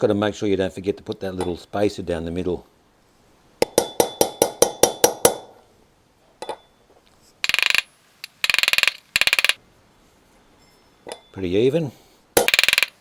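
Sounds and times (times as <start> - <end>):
hammer tapping metal: 3.6 - 5.5, 7.5 - 9.6, 12.4 - 13.0.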